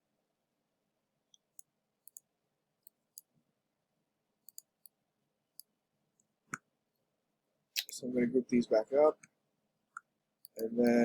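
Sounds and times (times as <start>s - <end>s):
computer mouse clicks: 1.3s - 3.3s, 4.4s - 5.0s, 9.9s - 11.0s.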